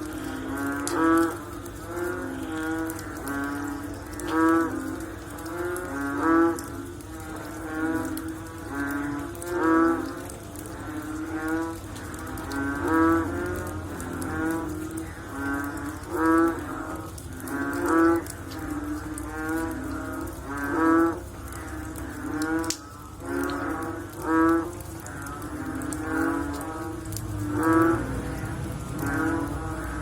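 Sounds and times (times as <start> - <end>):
frogs calling: 0.0 - 30.0.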